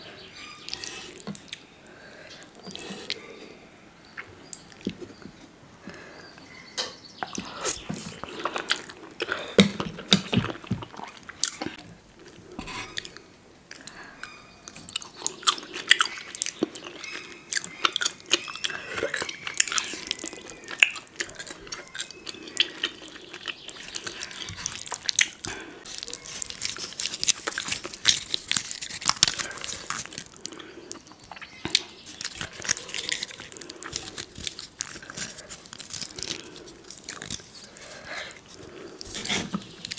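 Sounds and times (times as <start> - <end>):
mouth chewing noodles wetly: 7.3 - 14.1, 14.7 - 39.9.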